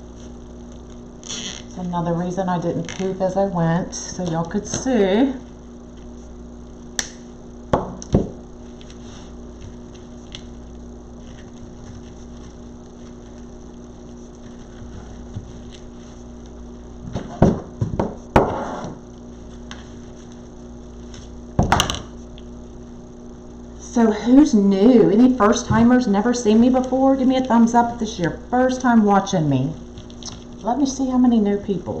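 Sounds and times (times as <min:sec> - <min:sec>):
electrical hum: 0:00.0 - 0:32.0
ribbon rustling: 0:08.6 - 0:16.6.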